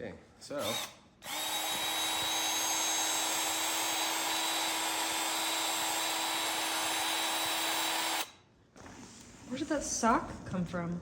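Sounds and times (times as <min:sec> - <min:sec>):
power tool motor running: 0:00.6 - 0:08.3.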